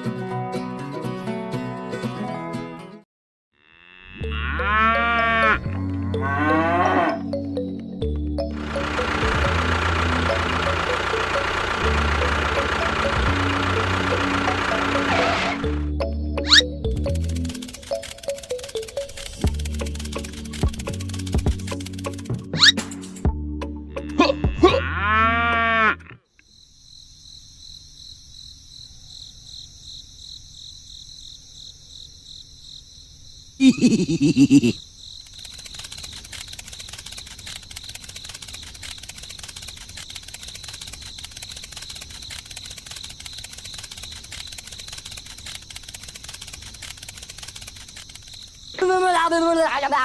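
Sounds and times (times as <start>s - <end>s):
steady high buzzing: 8.5s - 15.8s.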